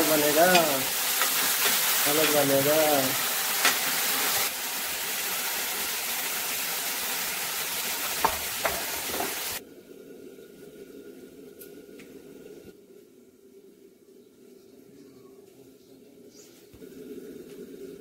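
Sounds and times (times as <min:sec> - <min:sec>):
flowers sizzling in a pan: 0:00.0 - 0:09.6
steel spoon scraping a pan: 0:00.4 - 0:02.6.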